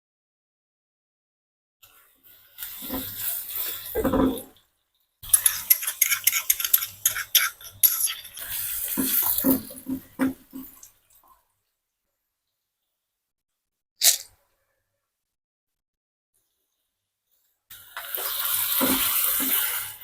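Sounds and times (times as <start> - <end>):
water running at sink: 2.3 - 11.4, 17.7 - 20.0
dishes and utensils clinking: 5.2 - 10.4.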